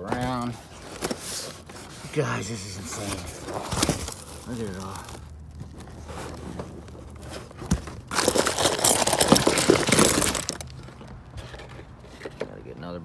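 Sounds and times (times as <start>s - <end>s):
cardboard boxes rummaged: 0.0s - 13.0s
crinkling and crunching rustle: 0.0s - 13.0s.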